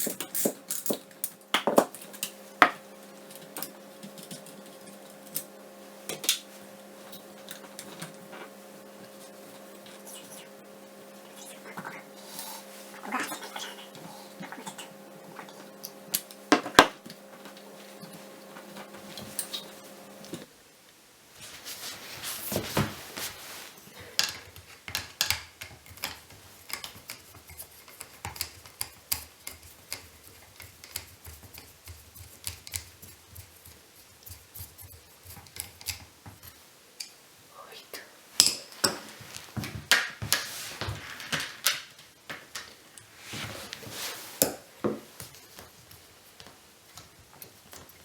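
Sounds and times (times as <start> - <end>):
small metal parts and tools clinking: 0.0 - 2.3
steady hum: 0.0 - 24.3.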